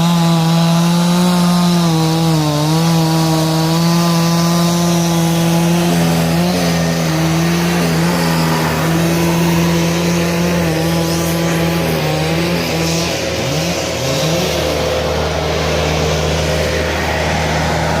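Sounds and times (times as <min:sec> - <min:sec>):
heavy equipment engine working: 0:00.0 - 0:18.0.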